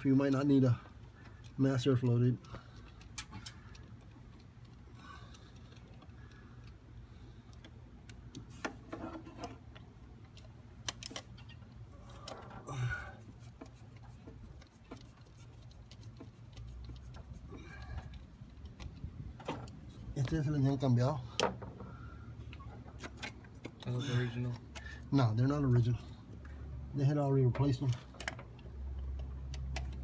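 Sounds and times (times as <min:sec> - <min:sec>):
light clicks and taps of hand work: 0:00.0 - 0:12.4, 0:13.2 - 0:21.9, 0:27.5 - 0:30.0.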